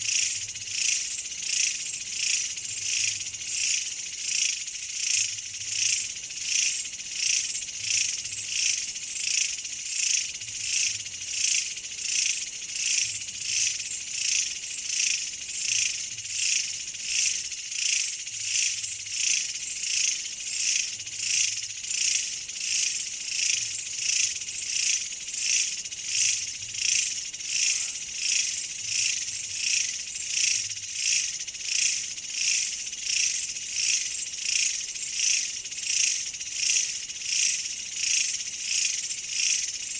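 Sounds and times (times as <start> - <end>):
insects shrill rasping chorus: 0.0 - 39.9.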